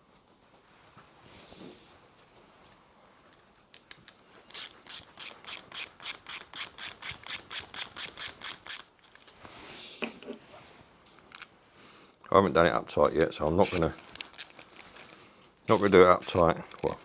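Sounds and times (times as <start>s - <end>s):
ratchet clicking: 4.5s - 8.9s, 15.7s - 17.0s.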